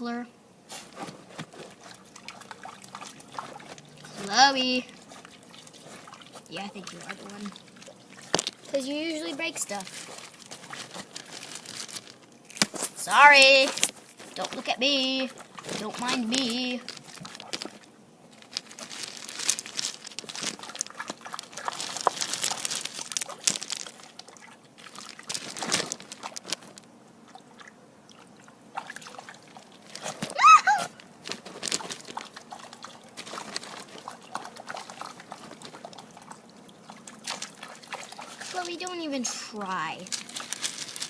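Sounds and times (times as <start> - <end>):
dog splashing in water: 1.5 - 8.8, 27.3 - 29.8, 31.8 - 38.6
dog whining: 30.3 - 31.0.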